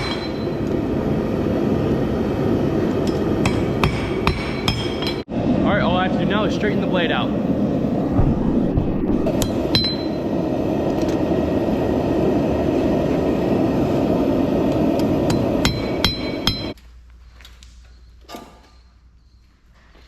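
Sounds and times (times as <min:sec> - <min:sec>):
forge rushing noise: 0:05.3 - 0:14.6.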